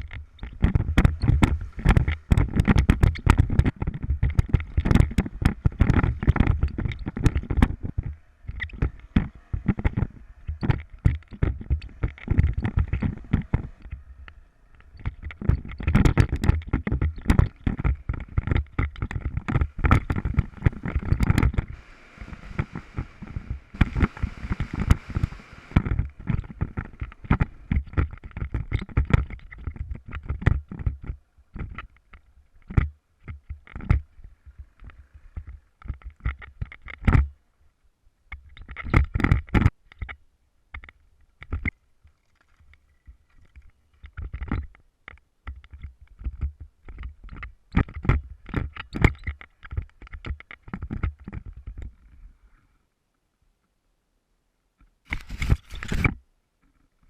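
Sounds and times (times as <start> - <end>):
motorcycle knocking and rattling: 0.0 - 14.1, 14.8 - 37.4, 43.1 - 51.9
motorcycle engine low rumble: 0.0 - 28.7.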